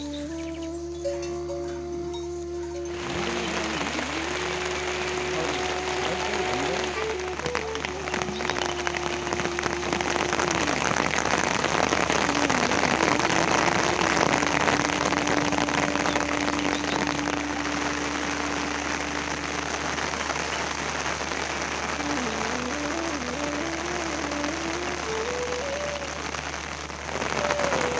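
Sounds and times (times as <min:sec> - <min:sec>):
faint pitched tone: 0:00.0 - 0:19.6
steady rain patter: 0:00.0 - 0:27.9.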